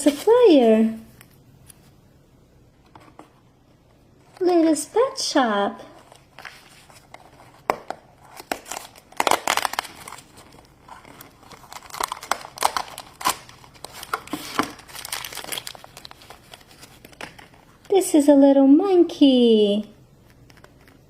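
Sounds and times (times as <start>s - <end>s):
plastic packaging crinkling and tearing: 5.8s - 17.8s.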